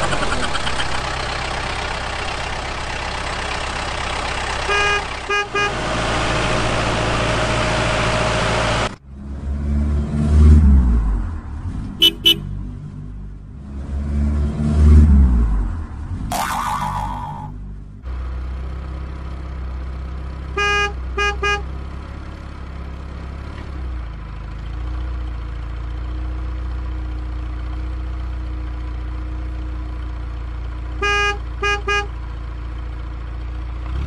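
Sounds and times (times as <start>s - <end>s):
low engine hum: 0.0s - 34.0s
vehicle horn toots: 4.6s - 5.8s, 12.0s - 12.5s, 20.6s - 21.7s, 31.0s - 32.2s.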